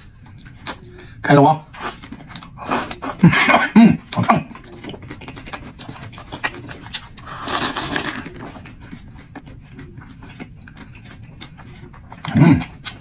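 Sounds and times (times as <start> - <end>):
chewing clicks and mouth smacks: 4.1 - 13.0.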